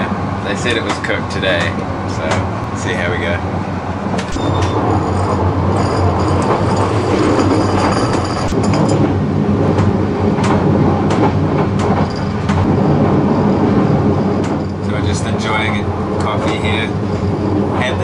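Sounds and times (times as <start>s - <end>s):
train wheels rumbling: 0.0s - 18.0s
clacks over rail joints: 0.6s - 2.5s.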